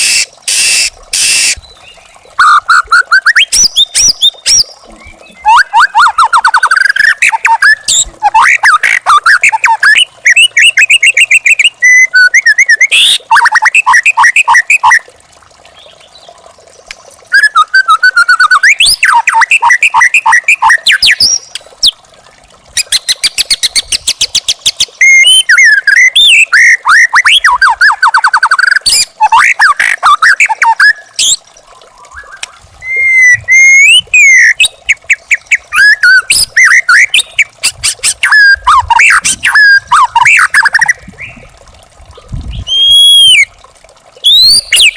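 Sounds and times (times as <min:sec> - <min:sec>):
songbird singing whistles: 0:00.0 - 0:15.0, 0:17.3 - 0:19.5, 0:32.0 - 0:34.7, 0:42.5 - 0:43.5, 0:44.2 - 0:44.9.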